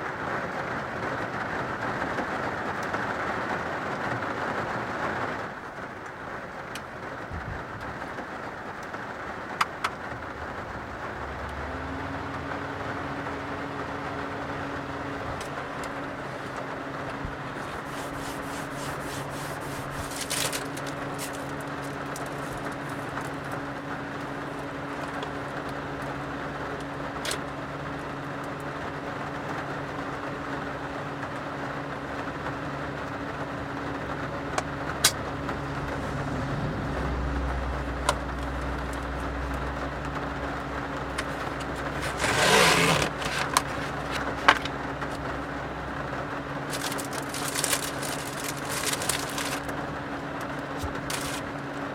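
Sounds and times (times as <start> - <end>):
steady rain: 0.0 - 51.9
low steady hum: 10.1 - 51.9
rustle: 14.2 - 23.8, 41.1 - 45.3, 50.6 - 51.6
deep rumble: 35.2 - 51.6.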